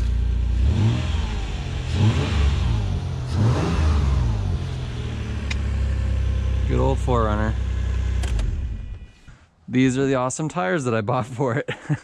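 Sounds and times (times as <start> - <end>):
car engine revving: 0.0 - 9.3.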